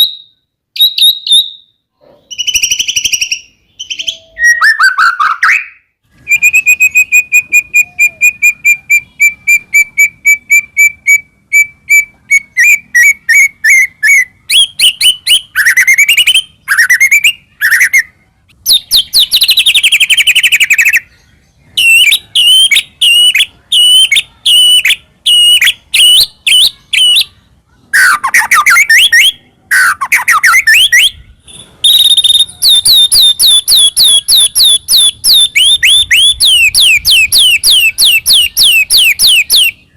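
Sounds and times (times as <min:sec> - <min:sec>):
shama singing whistled notes: 0:00.0 - 0:18.1, 0:21.8 - 0:27.3, 0:28.0 - 0:39.8.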